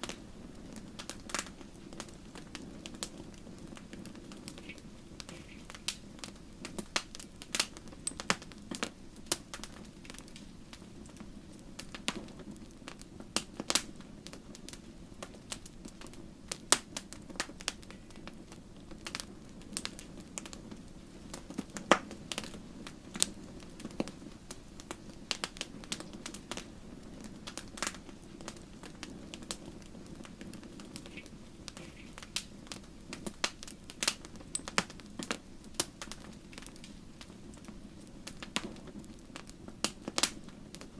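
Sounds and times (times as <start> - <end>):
logs crackling and popping: 0.0 - 40.9
low sound of fire: 0.0 - 40.9.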